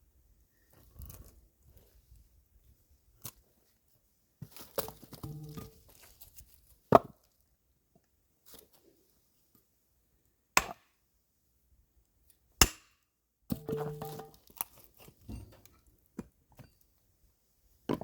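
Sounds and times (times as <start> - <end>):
axe splitting firewood: 4.8 - 5.9, 10.6 - 10.9, 12.6 - 12.9, 13.5 - 15.7
wood knocking and clattering: 13.5 - 14.4.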